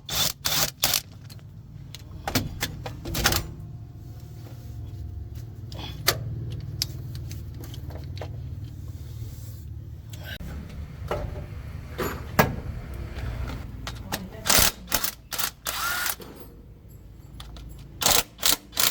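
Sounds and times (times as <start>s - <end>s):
vehicle engine idling: 1.1s - 13.9s.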